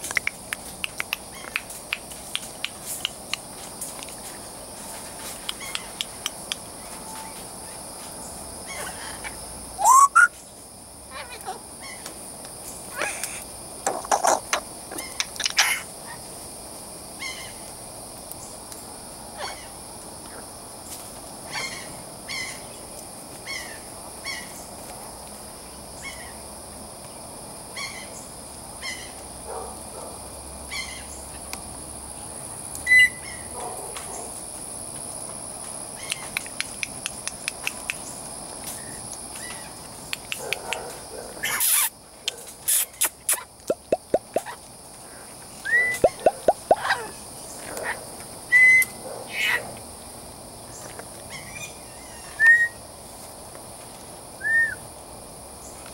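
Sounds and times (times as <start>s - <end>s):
sharp clicks: 0.0s - 3.4s
high-pitched insect drone: 5.5s - 10.4s, 41.4s - 42.0s, 45.4s - 49.7s
short bird calls: 9.8s - 10.3s.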